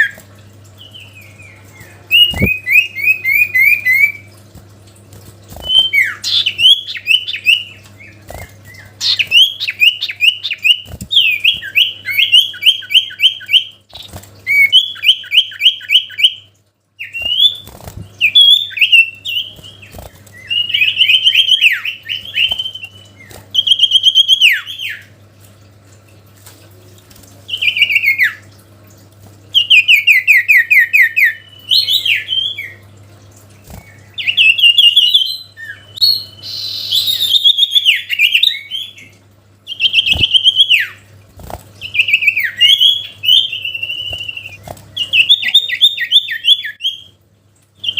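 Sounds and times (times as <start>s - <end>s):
songbird chips and whistled notes: 0.9s - 4.2s.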